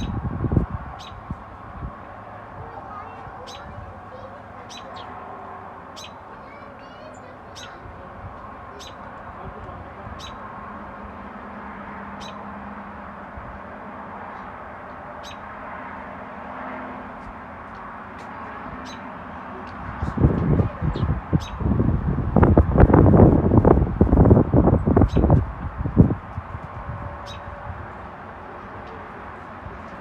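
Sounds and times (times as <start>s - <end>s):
steady background noise: 0.0s - 30.0s
small bird chirping: 1.0s - 1.2s, 3.4s - 3.8s, 4.7s - 5.2s, 6.0s - 6.2s, 7.1s - 7.8s, 8.8s - 9.1s, 10.2s - 10.4s, 12.2s - 12.4s, 15.2s - 15.4s, 18.8s - 20.2s, 20.8s - 21.7s, 25.0s - 25.4s, 27.2s - 27.5s.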